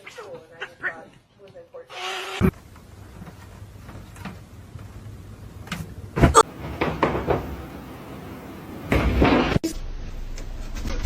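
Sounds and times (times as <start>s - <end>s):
cupboard door knocks and clatters: 6.2s - 7.6s.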